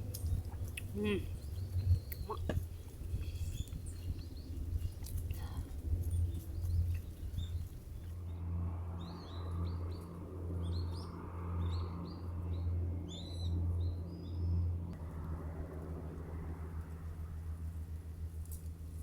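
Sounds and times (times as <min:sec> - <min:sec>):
steady low rumble: 0:00.0 - 0:19.0
small bird chirping: 0:00.1 - 0:08.1.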